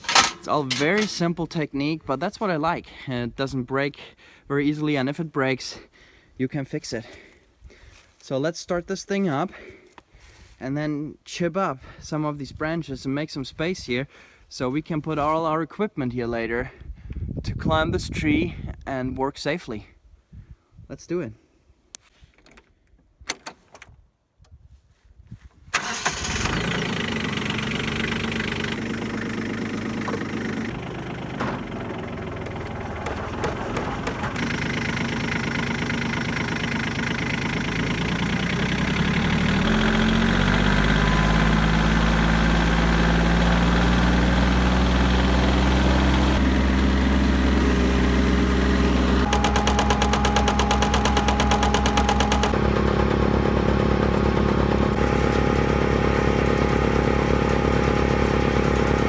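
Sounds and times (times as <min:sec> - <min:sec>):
diesel engine cranking: 0:00.0 - 0:01.4, 0:25.7 - 0:59.0
tractor engine running: 0:00.0 - 0:01.4, 0:25.8 - 0:59.0.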